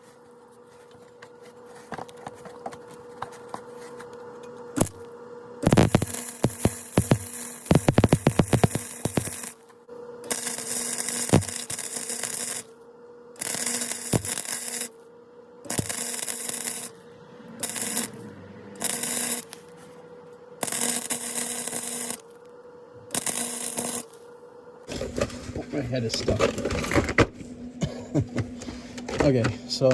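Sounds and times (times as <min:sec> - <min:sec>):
welding crackle and hiss: 0:00.0 - 0:12.8, 0:13.4 - 0:15.1, 0:15.7 - 0:17.0, 0:17.6 - 0:20.0, 0:20.6 - 0:22.5, 0:23.1 - 0:24.4
steady hum: 0:00.0 - 0:29.9.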